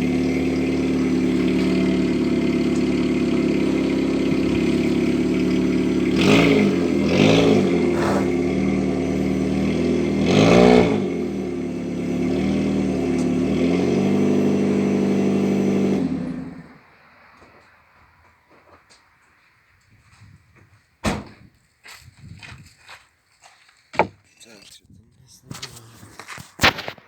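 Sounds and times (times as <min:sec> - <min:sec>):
car engine idling and revving: 0:00.0 - 0:18.6.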